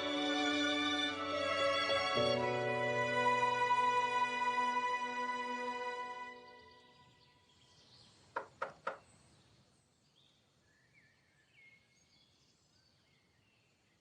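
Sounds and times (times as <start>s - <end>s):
knocking on door: 8.4s - 9.0s.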